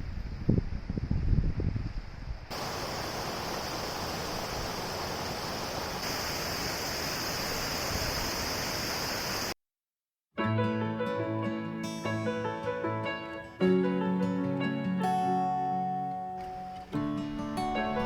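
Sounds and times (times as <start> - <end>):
wind buffeting microphone: 0.0 - 6.1
stream flowing over rocks: 2.5 - 9.5.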